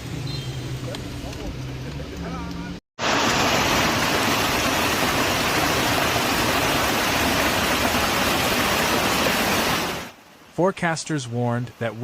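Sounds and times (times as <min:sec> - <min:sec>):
torrential rain hissing: 0:03.0 - 0:12.0.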